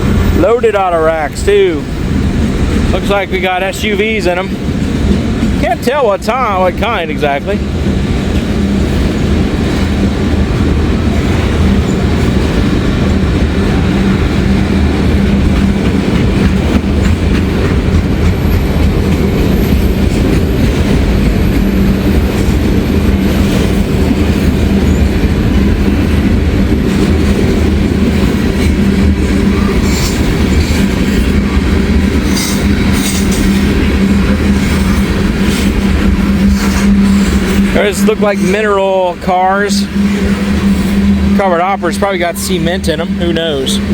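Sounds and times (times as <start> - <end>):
freight train rumble and wheel clatter: 0.0 - 43.9
high wheel squeal: 28.6 - 43.9.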